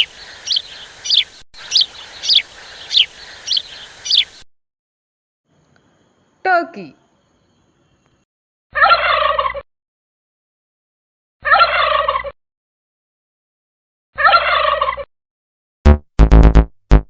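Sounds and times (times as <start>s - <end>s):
wild turkey gobbling: 0.0s - 4.4s, 8.8s - 9.6s, 11.4s - 12.4s, 14.2s - 15.1s.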